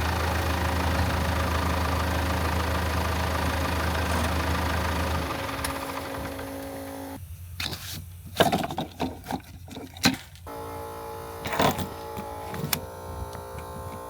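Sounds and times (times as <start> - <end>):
engine low rumble: 0.0 - 8.4.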